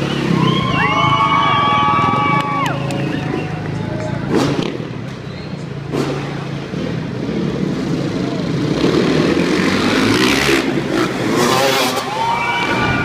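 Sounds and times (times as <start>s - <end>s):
dirt bike engine revving: 4.2s - 5.1s, 5.8s - 13.0s.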